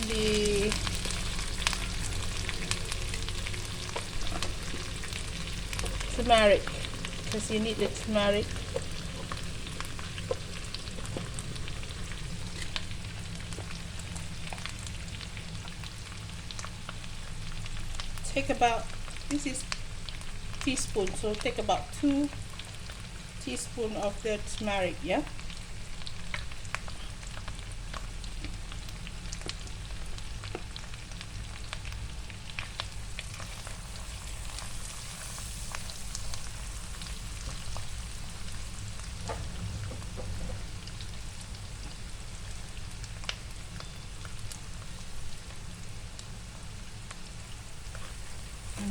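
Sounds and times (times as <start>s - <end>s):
sharp crackles and pops: 0.0s - 48.9s
spice paste sizzling in oil: 0.0s - 48.9s
small pops and crackles: 25.5s - 33.7s.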